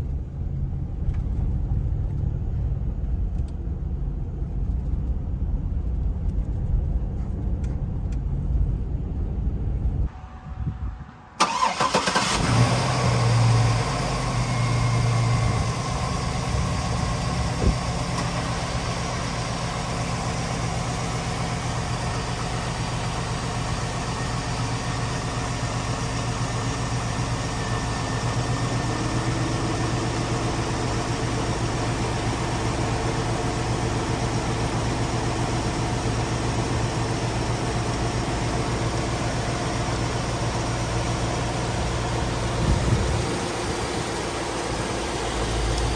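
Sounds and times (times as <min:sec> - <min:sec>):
car engine starting and idling: 0:11.2 - 0:45.9.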